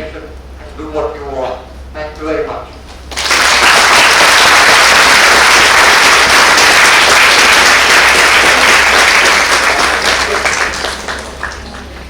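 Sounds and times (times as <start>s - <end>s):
audience applause: 3.1s - 12.0s.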